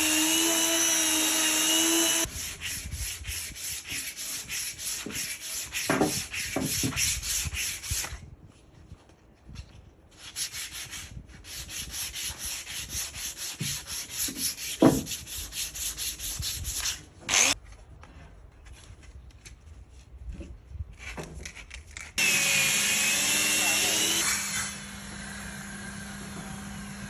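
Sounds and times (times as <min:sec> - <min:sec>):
sandpaper rubbing on wood: 0:02.2 - 0:08.1, 0:10.2 - 0:17.0.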